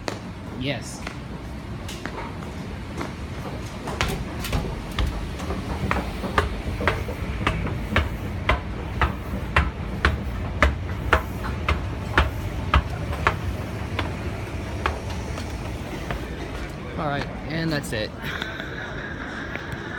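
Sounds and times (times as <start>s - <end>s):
steady low rumble: 0.0s - 19.9s
footsteps on hard floor: 2.0s - 17.3s.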